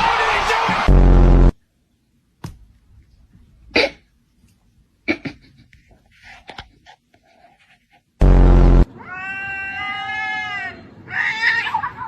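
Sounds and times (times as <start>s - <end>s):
loud harsh blast: 0.4s - 1.5s, 8.2s - 8.9s
cat meowing: 9.0s - 11.8s.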